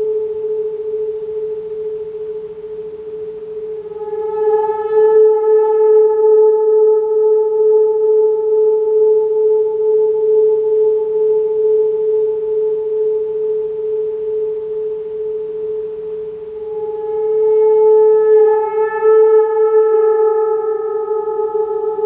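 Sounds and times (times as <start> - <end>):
metal singing bowl tone: 3.6 - 8.3, 16.6 - 22.0.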